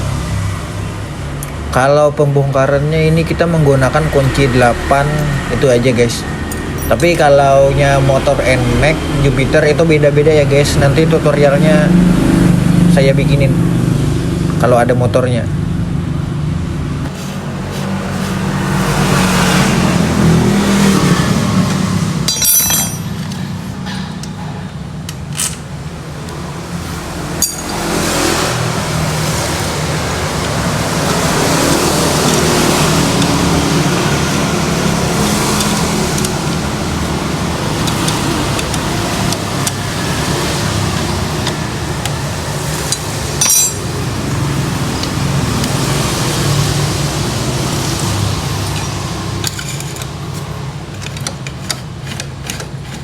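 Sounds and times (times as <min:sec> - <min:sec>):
vehicle engine drone: 0:00.0 - 0:52.2
hand tools clicking: 0:21.7 - 0:24.4, 0:25.1 - 0:26.4, 0:27.4 - 0:28.0, 0:30.4 - 0:33.6, 0:35.2 - 0:36.7, 0:37.7 - 0:39.9, 0:41.0 - 0:44.0, 0:47.8 - 0:53.0.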